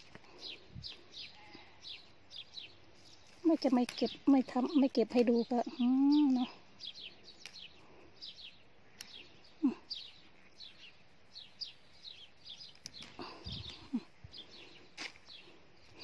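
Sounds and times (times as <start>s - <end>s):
songbirds chirping: 0.0s - 16.0s
faint clicks: 9.0s - 9.2s.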